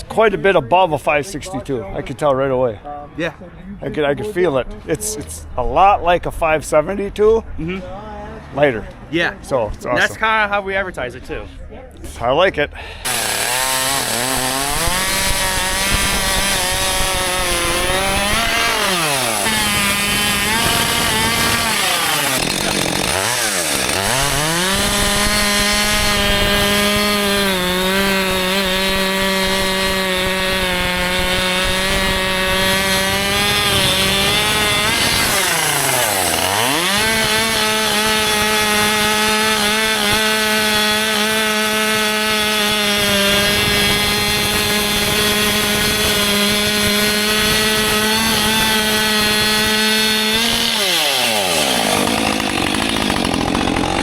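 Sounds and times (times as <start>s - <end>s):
chainsaw cutting wood: 13.0s - 54.0s.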